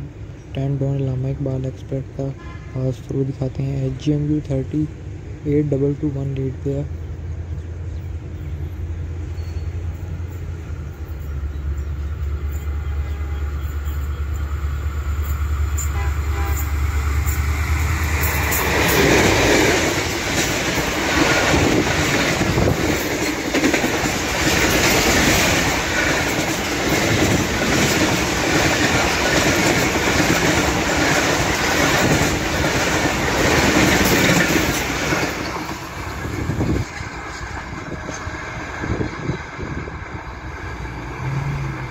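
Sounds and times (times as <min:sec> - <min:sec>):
train rushing past rumble: 0:00.0 - 0:41.9
locomotive low drone: 0:04.9 - 0:22.8, 0:33.9 - 0:41.9
wheels clickety-clack over rail joints: 0:09.4 - 0:41.9.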